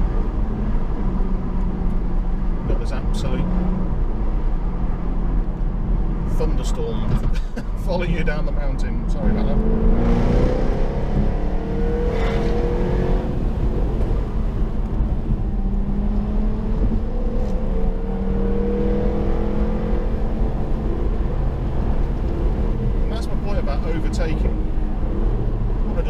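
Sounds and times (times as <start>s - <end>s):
car engine cruising: 0.0s - 26.0s
tyre and road noise: 0.0s - 26.0s.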